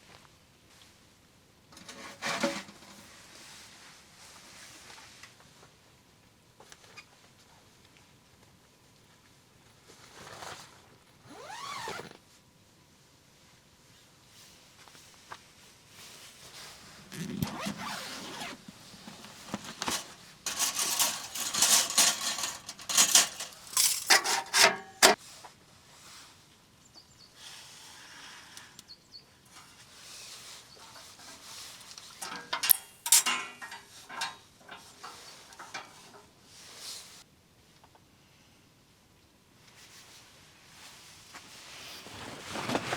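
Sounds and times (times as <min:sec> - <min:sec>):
handling noise rubbing and scraping: 0:01.7 - 0:03.8, 0:16.0 - 0:25.2, 0:29.5 - 0:37.2, 0:41.3 - 0:42.9.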